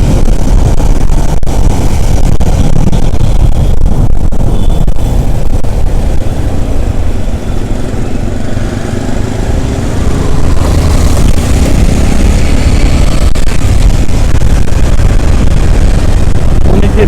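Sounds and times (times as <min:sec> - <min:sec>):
motorcycle engine and road rumble: 0:00.0 - 0:17.0.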